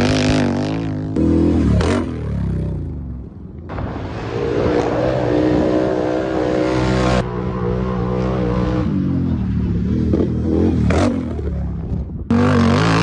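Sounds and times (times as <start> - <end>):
atv engine revving: 0.0 - 3.0, 4.2 - 13.0.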